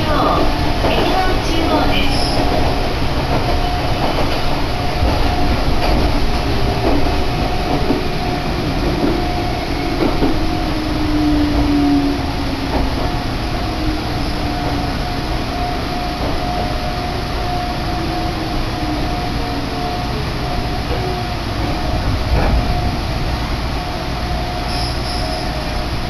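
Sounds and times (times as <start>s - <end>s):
train carriage jolt: 0.0s - 10.6s, 20.9s - 23.0s
train rumble with whine: 0.0s - 26.0s.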